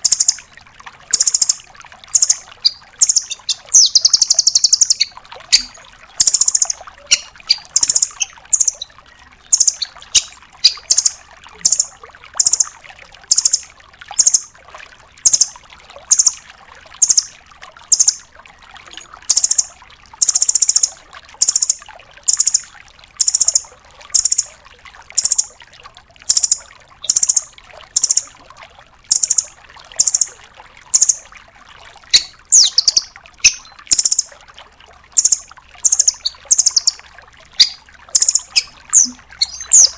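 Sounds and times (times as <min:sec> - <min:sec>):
bird chattering trill: 0:00.0 - 0:00.4, 0:01.1 - 0:08.9, 0:09.5 - 0:12.7, 0:13.3 - 0:13.6, 0:14.2 - 0:14.5, 0:15.3 - 0:15.5, 0:16.1 - 0:16.4, 0:17.0 - 0:17.3, 0:17.9 - 0:18.2, 0:19.3 - 0:22.6, 0:23.2 - 0:23.6, 0:24.2 - 0:24.5, 0:25.2 - 0:25.5, 0:26.3 - 0:28.3, 0:29.1 - 0:30.3, 0:30.9 - 0:31.2, 0:32.1 - 0:34.3, 0:35.2 - 0:37.0, 0:37.6 - 0:39.9.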